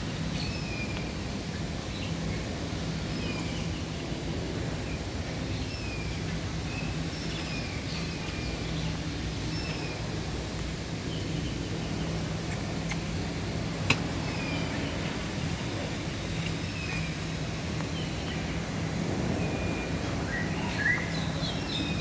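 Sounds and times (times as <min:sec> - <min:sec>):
steady low hum: 0:00.0 - 0:22.0
chirping bird calls: 0:11.0 - 0:22.0.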